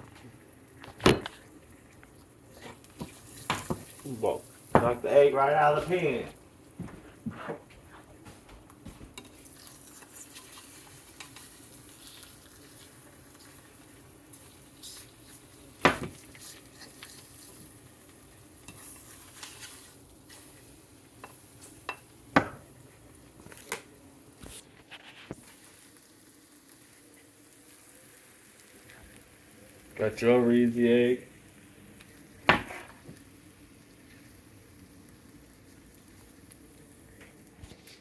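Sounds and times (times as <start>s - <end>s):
egg sizzling in a pan: 0.0s - 38.0s
spatula scraping a pan: 9.2s - 17.8s, 18.6s - 22.1s, 32.6s - 33.0s.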